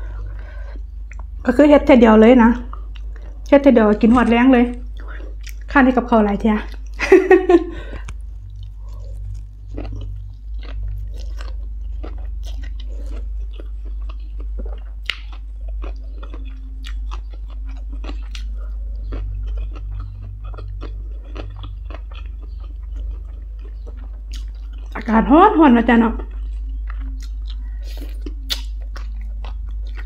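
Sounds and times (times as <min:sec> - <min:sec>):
person chewing crunchy food: 0:00.0 - 0:01.4, 0:02.6 - 0:05.8, 0:06.6 - 0:25.1, 0:26.2 - 0:30.0
steady low hum: 0:00.0 - 0:30.0.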